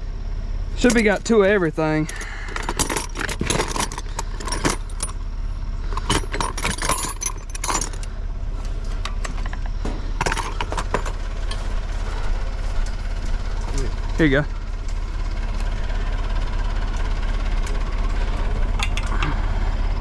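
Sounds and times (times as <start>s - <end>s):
engine idling: 0.0s - 20.0s
metal tools clinking: 0.8s - 5.2s, 5.8s - 8.1s, 8.7s - 11.8s.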